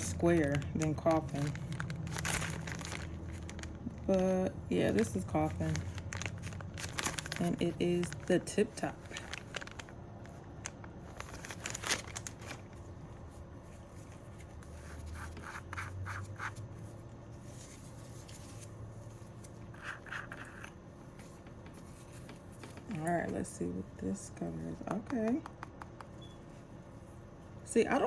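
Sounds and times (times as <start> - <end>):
hands handling packaging: 0.0 - 15.5.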